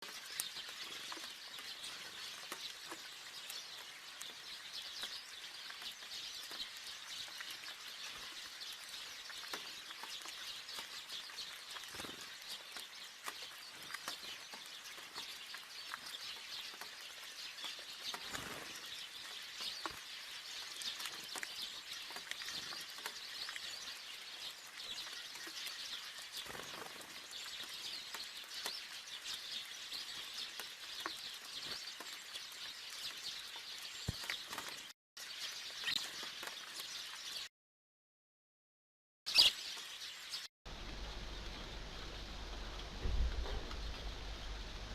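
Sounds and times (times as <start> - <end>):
steady rain falling: 0.0 - 34.9, 40.7 - 44.9.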